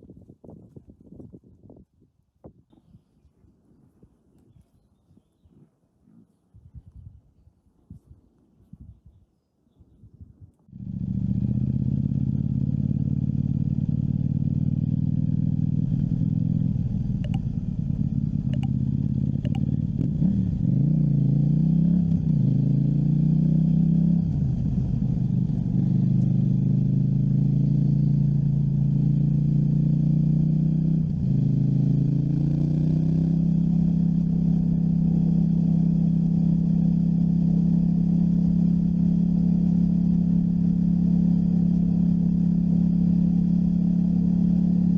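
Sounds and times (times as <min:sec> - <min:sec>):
motorcycle engine running: 0:10.7 - 0:44.9
sharp clicks: 0:17.2 - 0:17.5, 0:18.5 - 0:18.8, 0:19.4 - 0:19.7.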